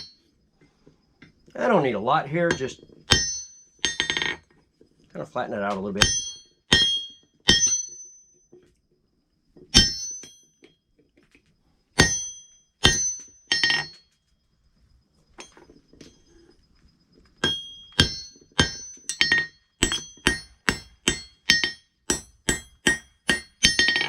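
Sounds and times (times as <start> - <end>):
hammer striking hot steel on anvil: 2.5 - 4.4, 6.0 - 8.2, 9.7 - 10.4, 12.0 - 14.0, 17.4 - 24.0.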